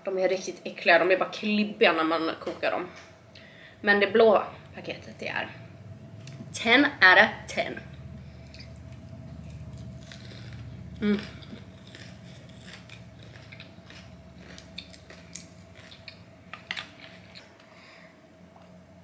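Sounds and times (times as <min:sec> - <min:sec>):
crunchy chewing: 0:08.0 - 0:17.6
person humming: 0:11.0 - 0:11.6.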